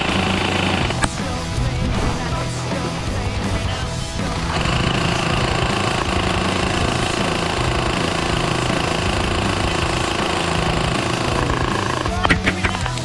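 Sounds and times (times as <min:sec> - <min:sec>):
airsoft gun full-auto firing: 0:04.5 - 0:12.8.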